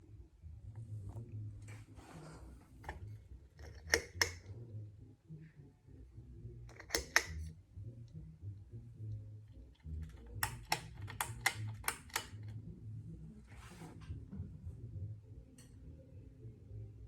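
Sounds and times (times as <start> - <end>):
pull-chain switch clicking: 3.6 - 4.4, 6.7 - 7.5, 10.4 - 12.4.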